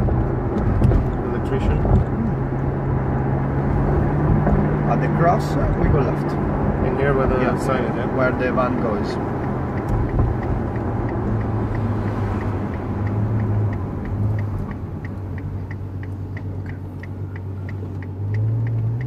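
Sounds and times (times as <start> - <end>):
car engine running at low revs: 0.0 - 19.0
turn signal ticking: 0.0 - 19.0.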